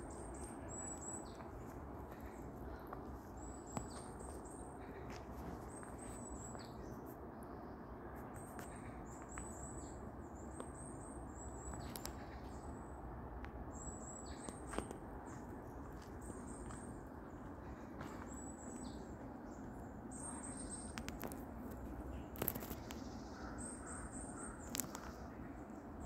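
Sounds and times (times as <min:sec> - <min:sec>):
low background noise: 0:00.0 - 0:26.0
small birds chirping: 0:00.0 - 0:26.0
sharp clicks: 0:20.9 - 0:21.4.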